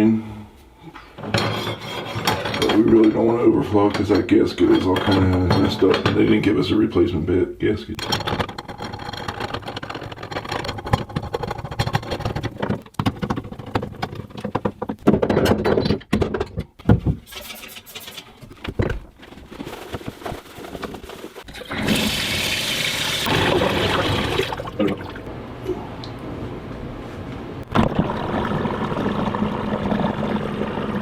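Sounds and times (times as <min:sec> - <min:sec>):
clicks and knocks of drain parts: 0:08.0 - 0:17.3
water rushing in tub: 0:21.5 - 0:25.3, 0:27.7 - 0:31.0.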